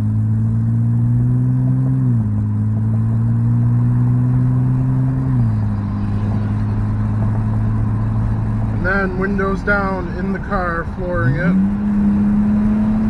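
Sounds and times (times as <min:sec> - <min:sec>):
car exhaust drone: 0:00.0 - 0:13.0.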